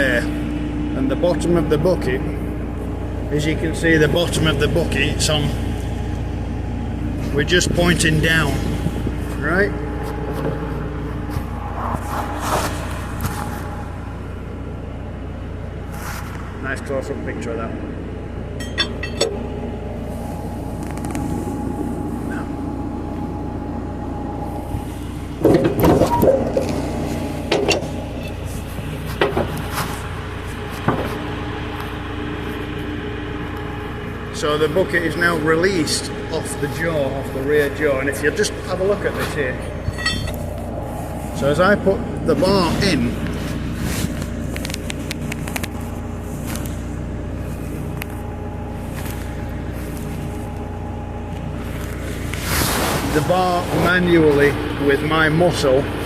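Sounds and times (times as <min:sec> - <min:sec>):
diesel engine idling: 0:00.0 - 0:56.0
loud metal clanks: 0:18.6 - 0:19.4, 0:25.4 - 0:26.8, 0:39.7 - 0:40.5
metal bar clinking: 0:18.6 - 0:19.4, 0:39.8 - 0:40.4.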